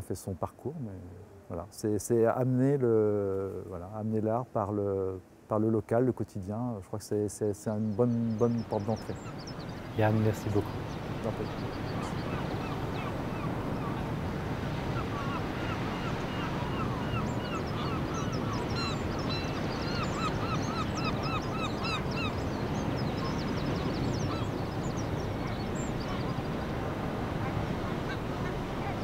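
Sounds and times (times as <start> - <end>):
low background noise: 0.0 - 29.0
birds calling: 7.3 - 29.0.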